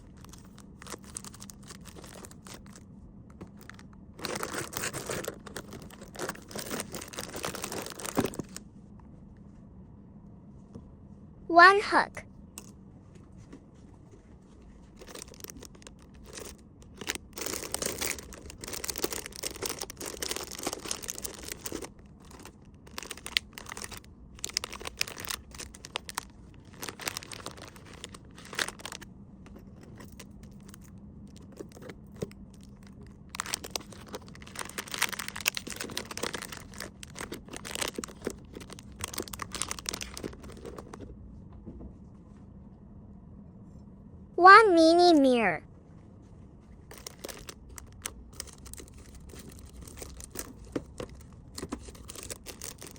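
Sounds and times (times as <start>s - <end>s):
packaging crinkling and rustling: 0.0s - 8.6s, 14.6s - 41.1s, 46.9s - 52.9s
faint steady hum: 0.0s - 52.9s.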